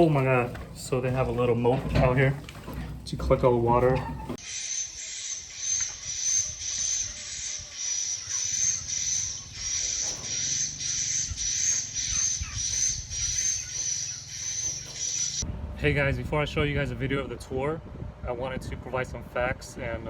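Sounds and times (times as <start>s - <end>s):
swiftlets chirping: 4.4s - 15.4s.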